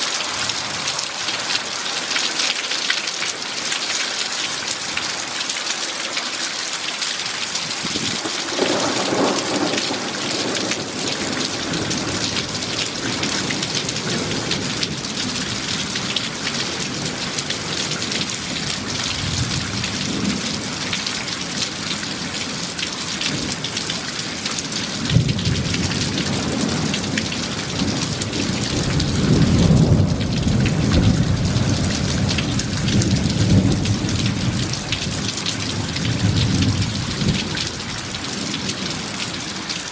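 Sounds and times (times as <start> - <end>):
heavy rain falling: 0.0 - 39.9
thunder rumbling: 7.8 - 16.0, 25.0 - 39.0.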